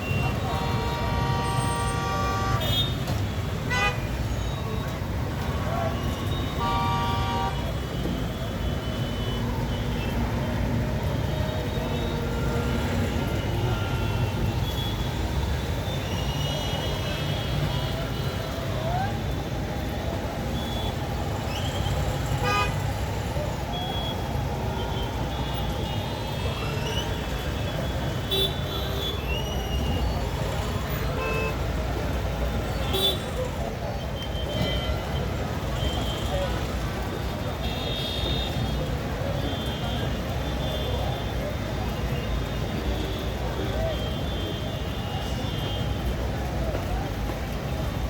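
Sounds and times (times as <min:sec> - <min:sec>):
traffic engines rumbling: 0:00.0 - 0:48.0
vehicle horns honking: 0:00.3 - 0:03.0, 0:06.5 - 0:07.8.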